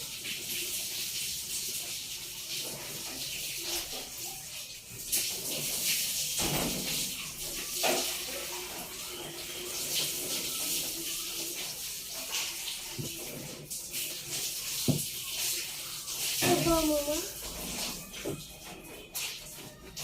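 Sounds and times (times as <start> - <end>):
tap water splashing in basin: 10.0 - 20.0.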